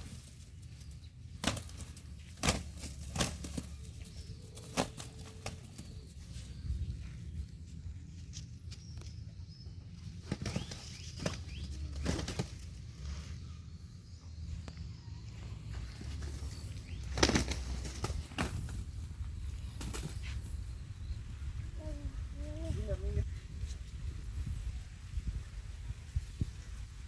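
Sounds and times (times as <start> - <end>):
roosters fighting wings flapping: 0.0 - 6.7, 10.0 - 13.4, 15.3 - 21.0.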